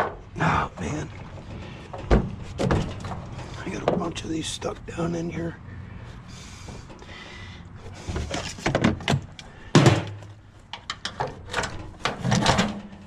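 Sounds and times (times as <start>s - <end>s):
loud thunk: 9.7s - 10.2s.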